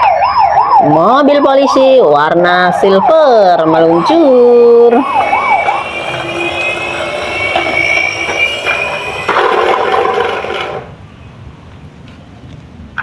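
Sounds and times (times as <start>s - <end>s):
toy car mechanical whir: 3.6s - 11.0s
thin high whine: 3.8s - 11.0s.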